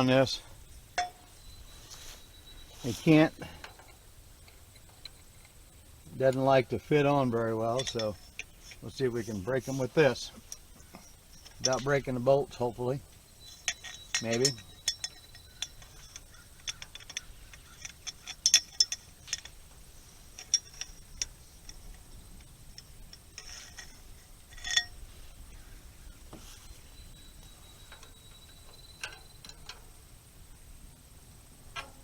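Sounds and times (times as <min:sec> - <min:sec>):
wrench clicking on metal bolts: 0:07.0 - 0:12.8, 0:13.4 - 0:19.8, 0:20.4 - 0:22.0, 0:22.8 - 0:25.0, 0:27.4 - 0:30.0.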